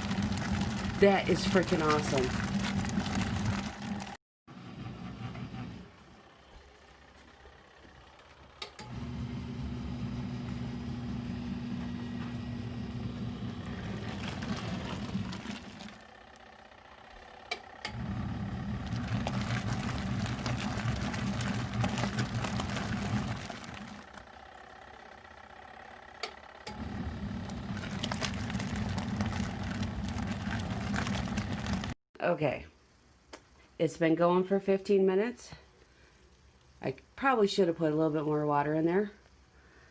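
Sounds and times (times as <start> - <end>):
washing machine motor agitating: 0.0 - 4.2, 8.9 - 16.4, 17.9 - 24.4, 26.7 - 32.0.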